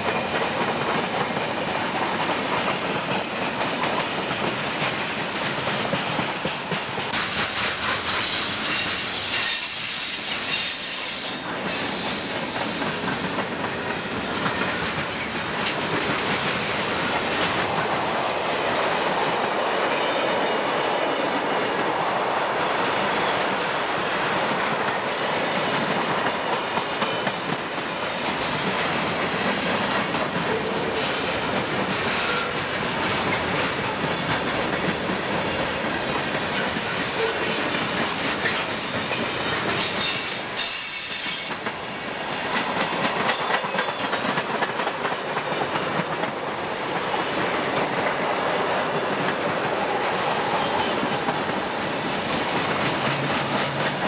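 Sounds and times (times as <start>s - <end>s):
train wheel-on-rail rumble: 0.0s - 54.0s
high-pitched wheel squeal: 8.8s - 12.8s, 40.0s - 41.6s.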